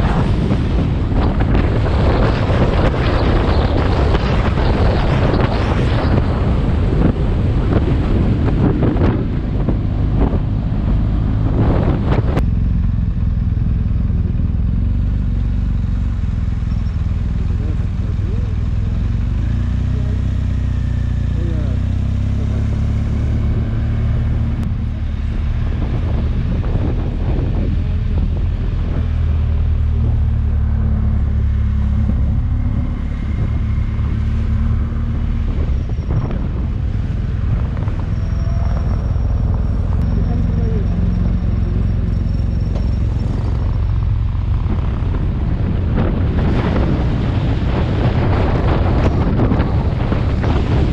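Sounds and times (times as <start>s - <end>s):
wind buffeting microphone: 0.0s - 12.4s, 23.2s - 50.9s
motorcycle engine drone: 0.0s - 50.9s.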